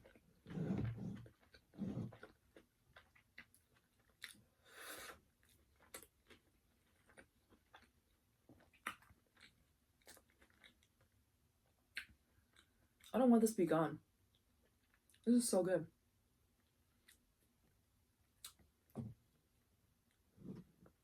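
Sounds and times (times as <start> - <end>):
chewing crunchy food: 1.2 - 4.5, 5.1 - 11.2.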